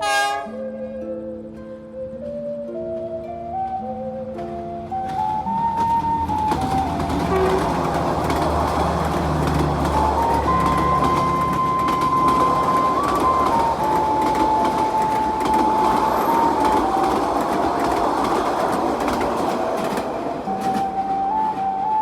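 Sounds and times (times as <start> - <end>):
slow thin background music: 0.0 - 18.6, 20.3 - 22.0
locomotive engine drone: 2.8 - 22.0
train wheels clattering: 4.9 - 22.0.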